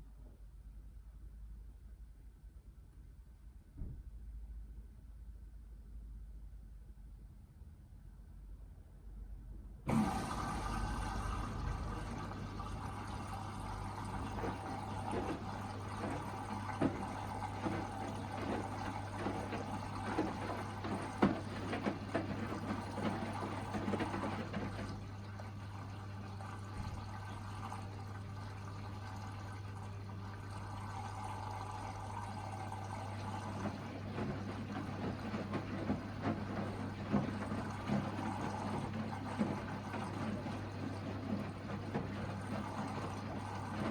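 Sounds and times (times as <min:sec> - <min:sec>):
washing machine low hum: 0:00.0 - 0:43.9
water sloshing in washing machine drum: 0:09.9 - 0:43.9.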